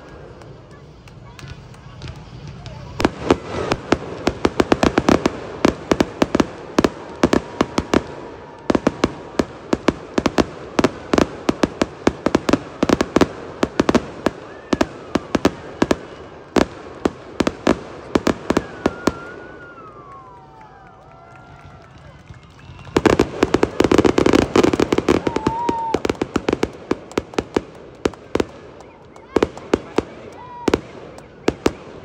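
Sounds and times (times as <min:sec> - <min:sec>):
fireworks bangs barrage: 0:00.0 - 0:32.0.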